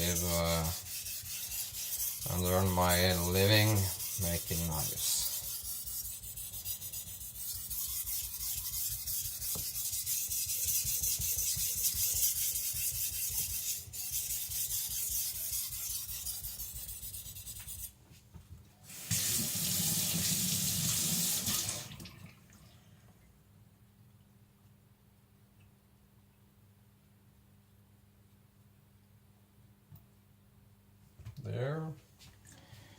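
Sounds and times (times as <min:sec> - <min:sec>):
blade scraping on whetstone: 0:00.0 - 0:17.8
water running from a tap: 0:18.9 - 0:22.4.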